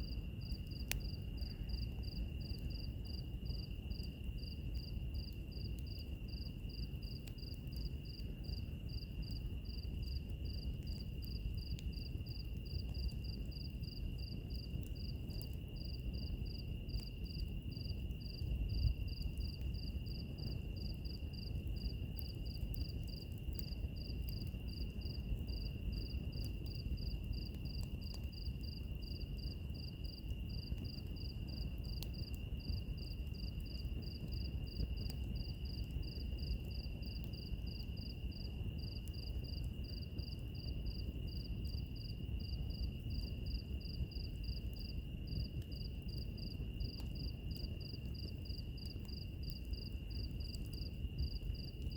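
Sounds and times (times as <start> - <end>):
cricket trilling: 0.0 - 42.9, 45.7 - 51.9
cricket chirping: 0.0 - 51.9
fire burning with crackles: 0.0 - 51.9.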